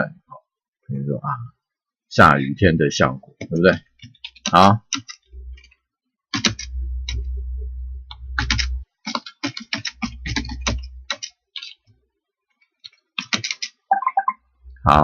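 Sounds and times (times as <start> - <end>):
typing on computer keyboard: 4.0 - 5.2, 6.3 - 6.7, 8.4 - 11.8, 12.8 - 13.8.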